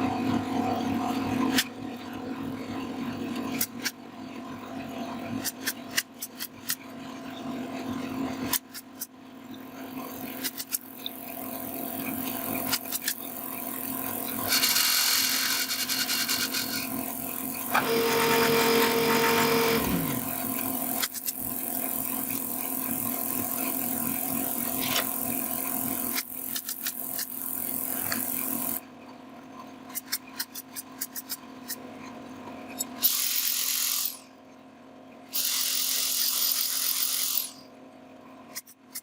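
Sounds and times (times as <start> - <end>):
small power tool running: 10.5 - 28.8, 35.4 - 37.6.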